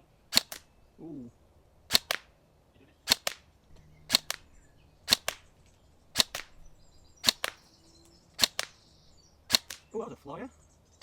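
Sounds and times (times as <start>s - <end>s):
airsoft rifle shots: 0.3s - 0.7s, 1.9s - 2.3s, 3.0s - 3.5s, 4.1s - 7.7s, 8.4s - 8.8s, 9.5s - 10.0s.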